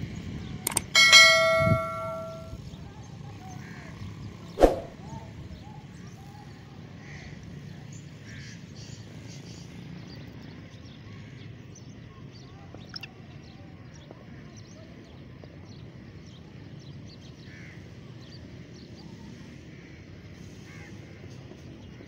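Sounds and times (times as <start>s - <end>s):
small click: 0.7s - 2.4s
wind rumble: 4.6s - 5.1s.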